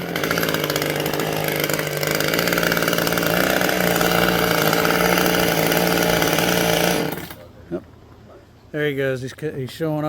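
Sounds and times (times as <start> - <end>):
small engine running at high speed: 0.0 - 7.4.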